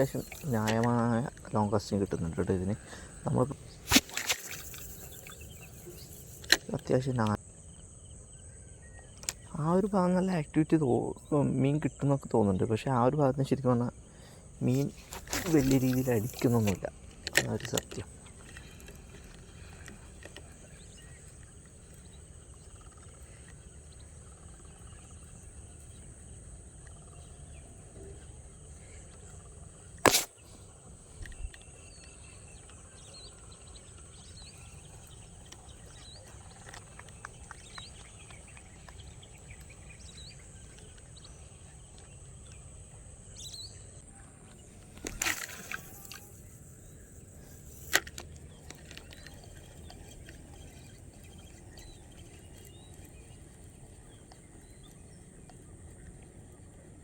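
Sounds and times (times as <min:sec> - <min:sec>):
faint bird chirps: 0:00.0 - 0:57.0
sharp click: 0:30.0 - 0:30.4.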